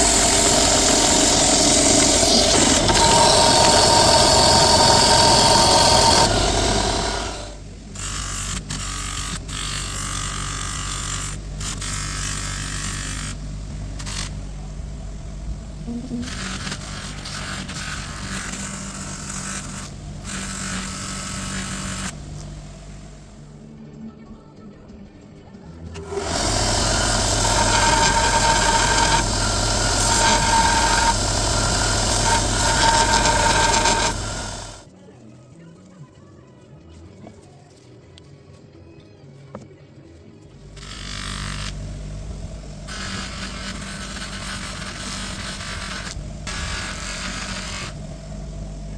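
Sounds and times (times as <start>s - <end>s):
abrasive hissing on metal: 0.0s - 23.5s, 26.0s - 34.9s, 40.7s - 48.9s
electric power tool humming: 0.0s - 23.5s, 26.0s - 34.9s, 40.6s - 48.9s.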